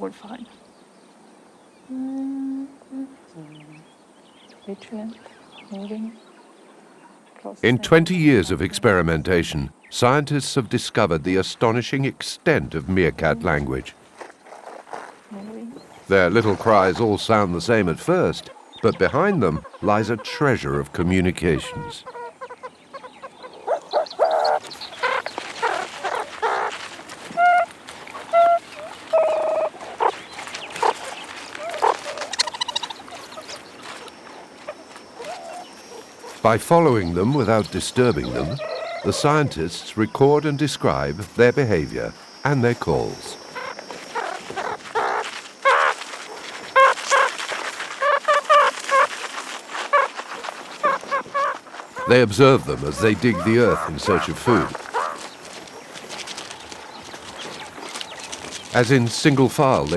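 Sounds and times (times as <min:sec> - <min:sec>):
meerkats squeaking: 0:14.5 - 0:59.9
meerkat pitched calls: 0:16.0 - 0:40.2, 0:40.8 - 0:55.3.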